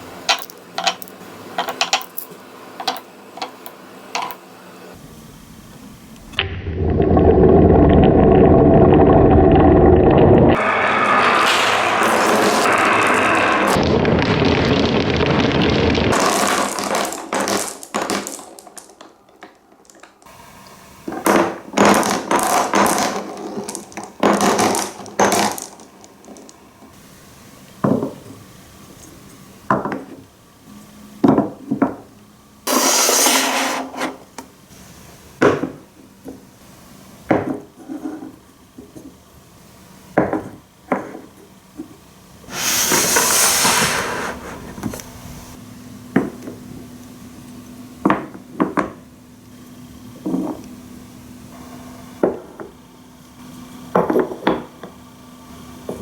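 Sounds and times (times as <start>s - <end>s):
marbles rattling on wooden run: 13.8s - 20.2s.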